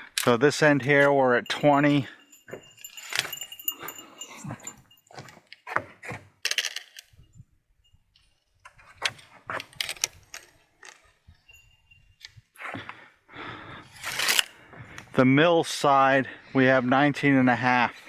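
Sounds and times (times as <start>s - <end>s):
handling clicks and knocks: 0.0s - 12.5s, 13.9s - 15.2s.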